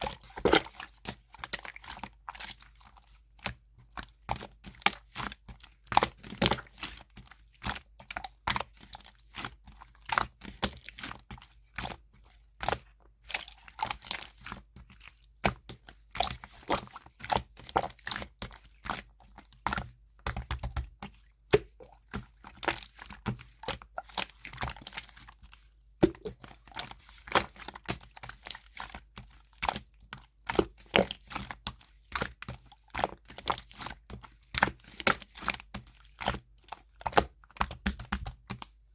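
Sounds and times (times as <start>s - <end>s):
slime squishing with clicks and pops: 15.4s - 25.3s, 26.0s - 38.7s.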